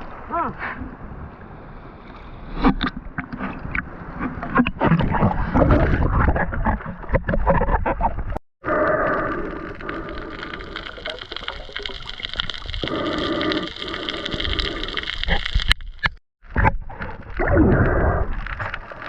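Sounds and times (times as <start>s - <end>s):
water sloshing and gurgling: 0.0s - 19.0s.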